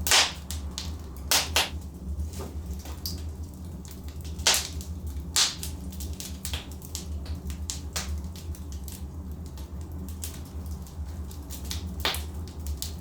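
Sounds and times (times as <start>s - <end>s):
logs crackling and popping: 0.0s - 1.9s, 2.7s - 13.0s
steady low hum: 0.0s - 5.5s.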